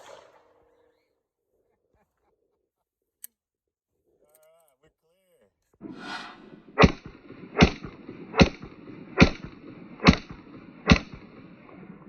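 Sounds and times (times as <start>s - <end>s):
pistol shots: 6.8s - 11.4s.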